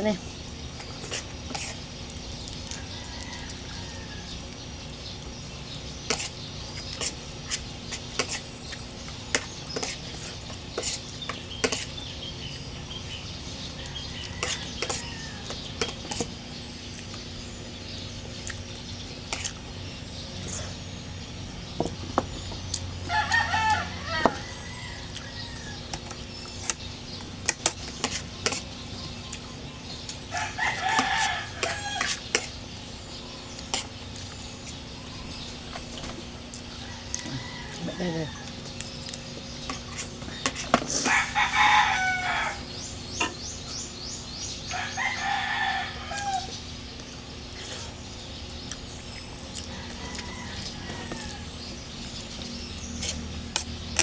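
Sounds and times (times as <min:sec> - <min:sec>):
rooster crowing: 0:02.7 - 0:04.5, 0:13.8 - 0:15.6, 0:23.0 - 0:25.9, 0:30.3 - 0:32.2, 0:36.7 - 0:38.6, 0:40.9 - 0:42.8, 0:44.7 - 0:46.6, 0:49.6 - 0:51.8
person eating: 0:18.3 - 0:20.8, 0:47.0 - 0:54.0.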